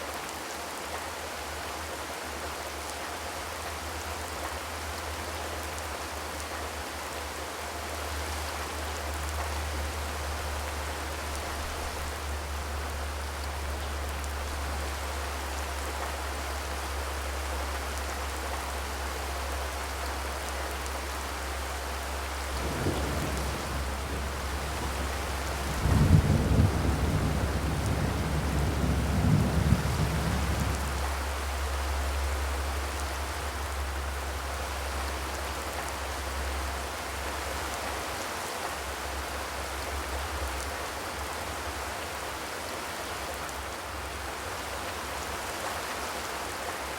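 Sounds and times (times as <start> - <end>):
steady rain falling: 0.0 - 46.9
deep thunder rumble: 22.5 - 31.2.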